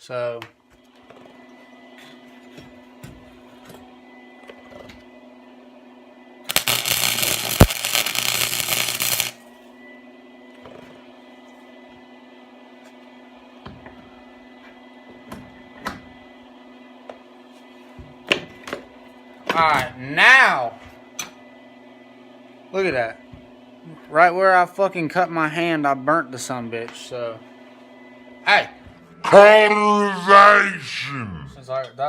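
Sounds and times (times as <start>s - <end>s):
low machine hum: 1.4s - 17.9s, 18.9s - 31.8s
arc welding burst: 6.5s - 9.4s.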